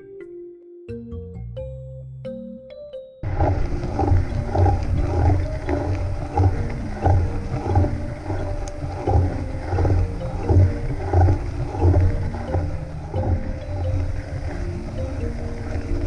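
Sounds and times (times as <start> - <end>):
mountain bike riding rumble: 3.2 - 16.0.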